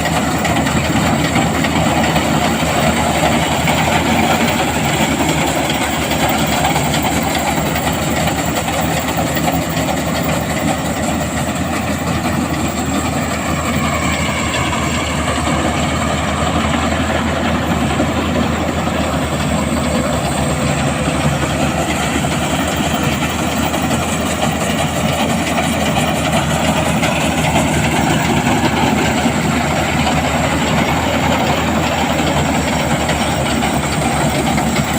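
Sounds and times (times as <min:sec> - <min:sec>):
harvester engine drone: 0:00.0 - 0:34.9.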